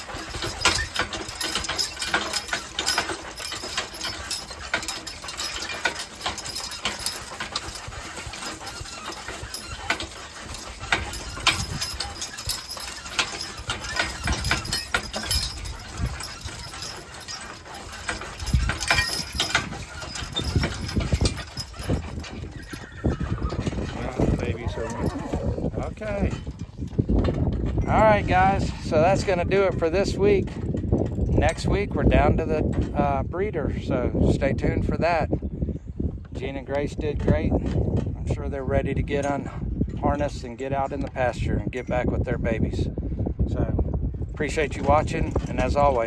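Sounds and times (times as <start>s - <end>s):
horse hooves clopping: 0.0s - 31.7s.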